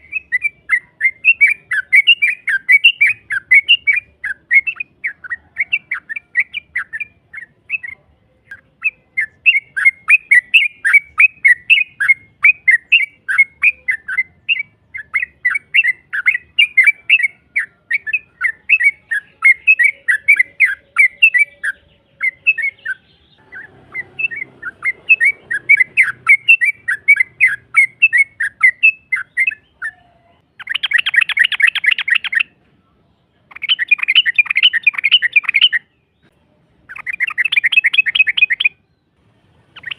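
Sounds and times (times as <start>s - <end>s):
bird chirping sharply: 0.0s - 32.6s, 33.5s - 39.9s
fast buzzy bird trills: 18.4s - 30.0s.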